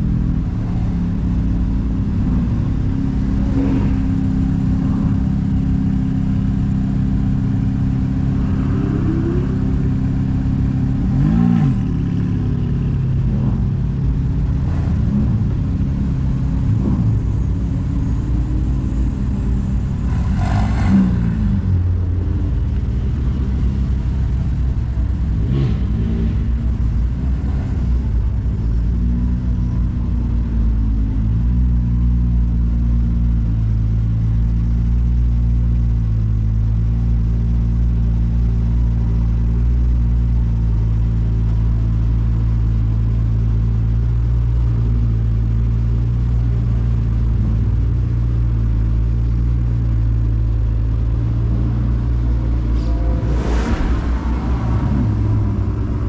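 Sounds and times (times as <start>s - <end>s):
sports car engines burbling: 0.0s - 56.0s
engine revs blipping: 49.2s - 56.0s.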